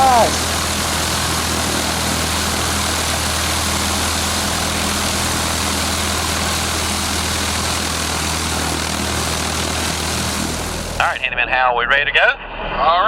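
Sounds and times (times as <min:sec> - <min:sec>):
light aircraft engine idling: 0:00.0 - 0:11.3.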